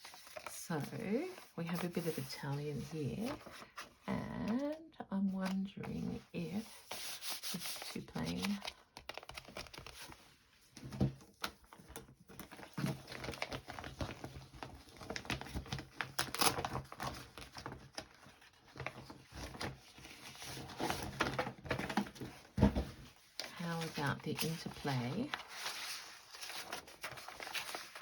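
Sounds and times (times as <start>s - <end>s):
paper rustling and shuffling: 0.0s - 28.0s.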